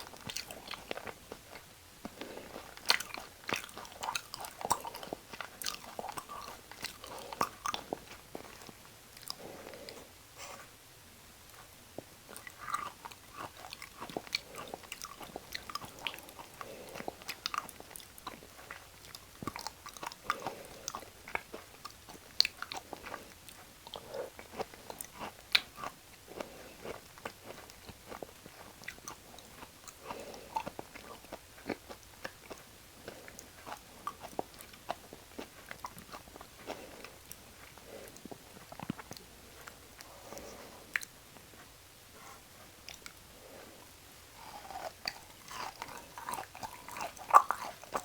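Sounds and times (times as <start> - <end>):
wet smacks and crunchy clicks: 0.0 - 9.4, 42.8 - 43.3
chewing and biting: 0.0 - 10.0, 11.4 - 43.7, 44.3 - 48.0.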